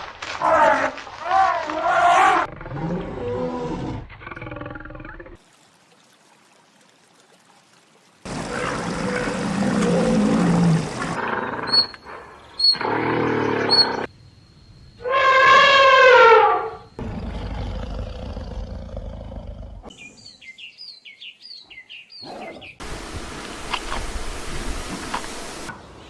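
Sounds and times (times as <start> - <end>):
drawn-out animal call: 8.3 - 12.0
high bird chirps: 11.6 - 12.9, 13.6 - 14.1, 19.9 - 22.8.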